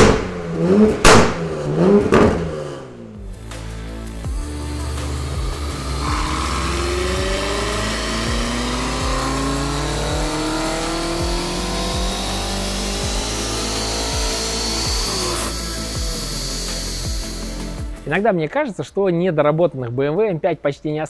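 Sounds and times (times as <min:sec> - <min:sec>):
car engine accelerating: 0:00.0 - 0:18.1
background music with beat: 0:03.0 - 0:18.2.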